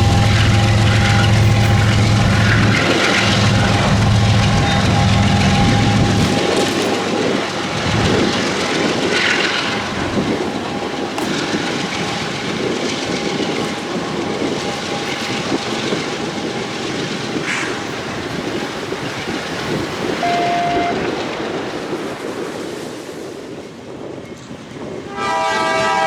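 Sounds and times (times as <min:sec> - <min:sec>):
diesel locomotive engine: 0:00.0 - 0:26.0
train wheels clattering on rails: 0:00.0 - 0:26.0
wind on microphone: 0:00.0 - 0:26.0.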